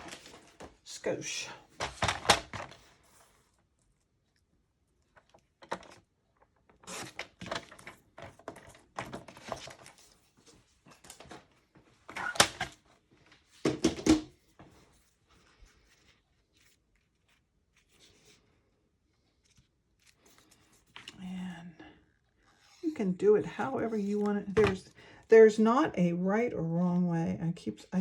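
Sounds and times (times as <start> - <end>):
paper rustling and sliding: 0.0 - 0.8, 6.8 - 13.6.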